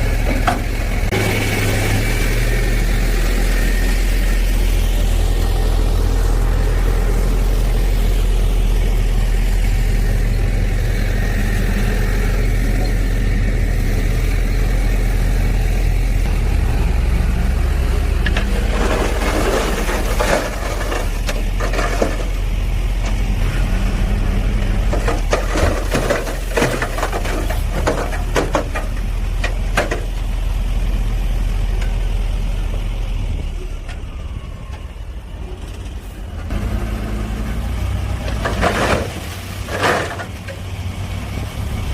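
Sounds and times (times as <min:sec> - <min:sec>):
diesel earthmoving machine running: 0:00.0 - 0:41.9
sharp clattering and cracking: 0:18.2 - 0:22.4, 0:24.9 - 0:30.2.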